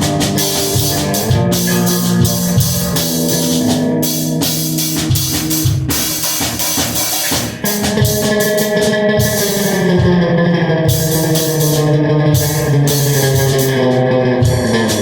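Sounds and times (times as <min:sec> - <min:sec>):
bass drum and snare hits: 0:00.0 - 0:10.4
rock band with guitar and drums: 0:00.0 - 0:15.0.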